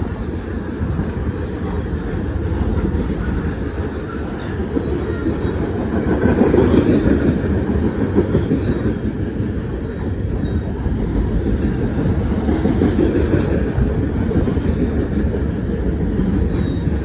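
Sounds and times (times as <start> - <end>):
train rolling past: 0.0 - 17.0.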